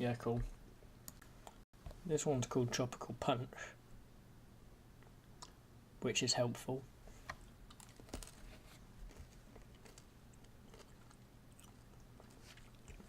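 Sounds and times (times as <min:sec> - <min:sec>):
candy chewing: 0:07.6 - 0:13.0.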